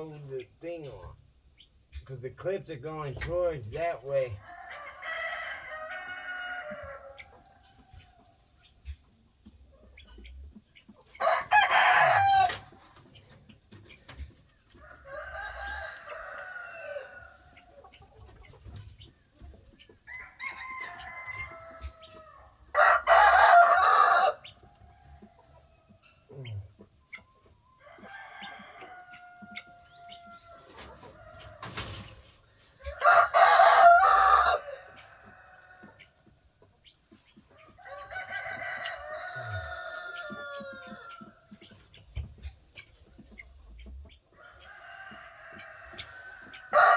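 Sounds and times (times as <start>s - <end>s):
distant roosters crowing: 4.1s - 8.5s, 10.9s - 13.4s, 14.6s - 26.8s, 27.8s - 36.8s, 37.4s - 42.0s, 43.4s - 46.9s
rooster crowing loudly: 4.4s - 7.2s, 11.2s - 12.7s, 14.9s - 17.4s, 20.1s - 24.4s, 32.9s - 35.9s, 37.8s - 41.3s, 44.4s - 46.9s.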